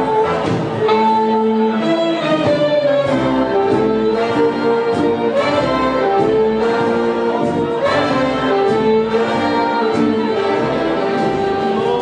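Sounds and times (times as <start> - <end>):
brass dance band music: 0.0 - 12.0.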